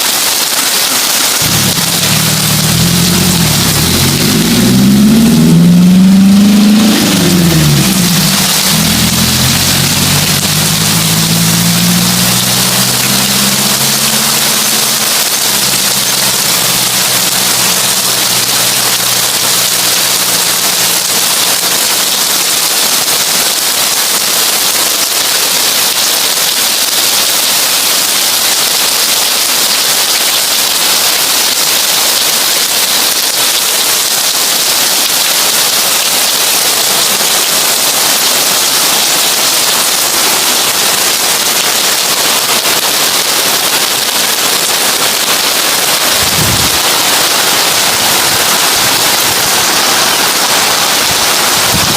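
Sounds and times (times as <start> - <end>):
heavy rain on a tin roof: 0.0 - 51.9
low hum: 1.4 - 20.6.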